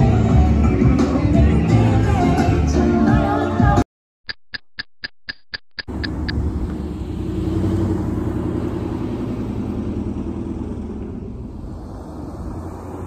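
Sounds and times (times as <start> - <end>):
vehicle engine rumble: 5.8 - 13.0.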